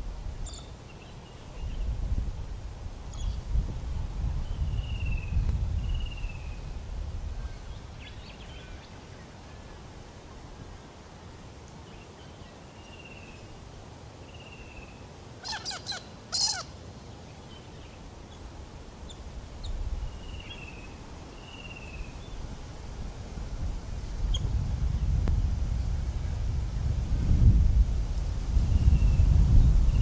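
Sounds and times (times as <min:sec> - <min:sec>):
harsh bird calls: 0:15.4 - 0:16.7.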